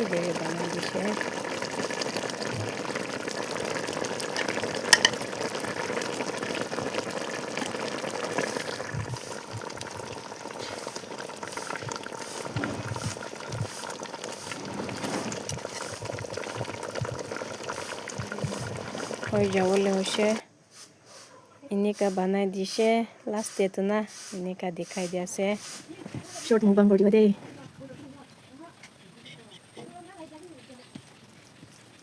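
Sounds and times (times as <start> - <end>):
curry bubbling in a pan: 0.0 - 20.4.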